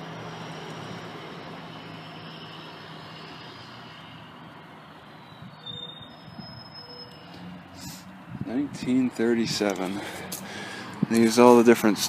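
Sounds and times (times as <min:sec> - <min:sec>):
vehicle passing: 0:07.2 - 0:12.0.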